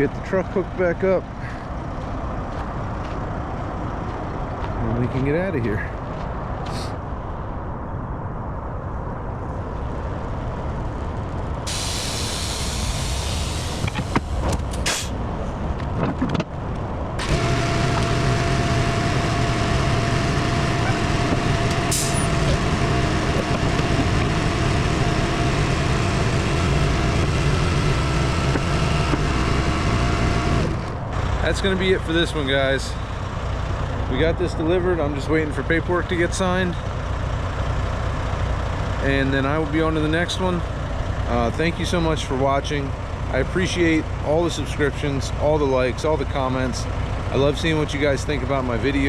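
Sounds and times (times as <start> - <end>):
truck engine running: 9.6 - 49.0
air hissing: 11.7 - 15.2
steady whine: 17.1 - 33.2.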